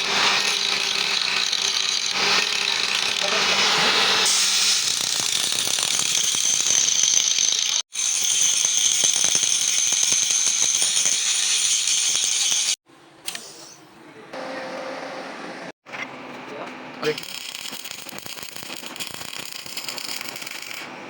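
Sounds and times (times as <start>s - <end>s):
welding arc crackling: 17.1s - 20.8s.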